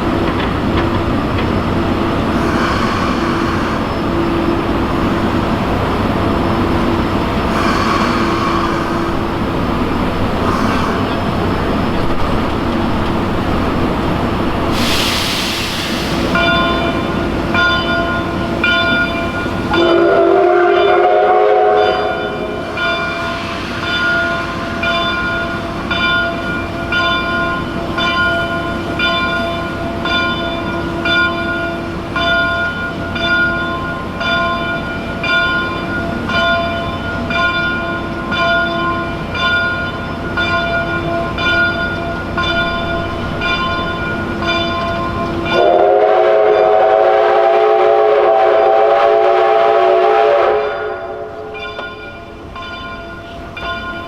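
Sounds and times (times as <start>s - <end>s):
low rumble of train: 0.0s - 54.0s
chime steam whistle: 2.4s - 5.4s, 14.7s - 54.0s
locomotive bell ringing: 16.2s - 47.4s, 50.6s - 54.0s.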